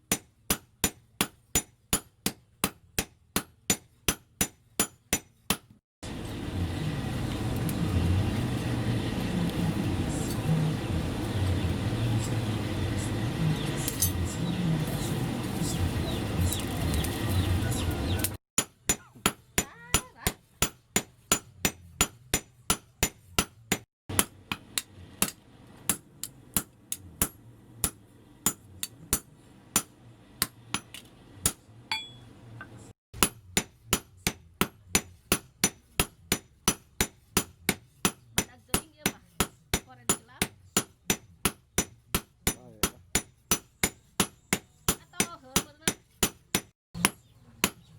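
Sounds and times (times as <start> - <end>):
hammer striking steel on anvil: 0.1 - 5.7, 18.6 - 32.3, 33.2 - 47.9
low rumbling noise: 6.0 - 18.4.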